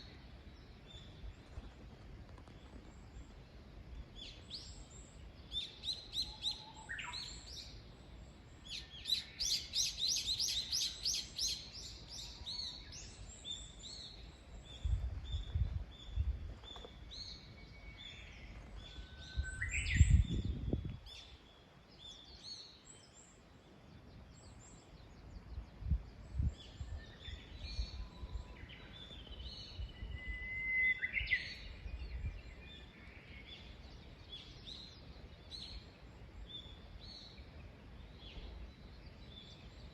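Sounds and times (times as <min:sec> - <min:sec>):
small birds chirping: 0:00.0 - 0:30.1.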